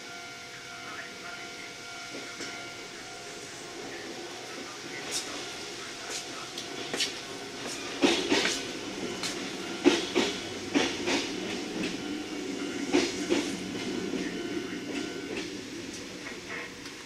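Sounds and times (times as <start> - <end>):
train running rumble: 0.0 - 17.0
train wheels clacking on rail joints: 6.1 - 17.0.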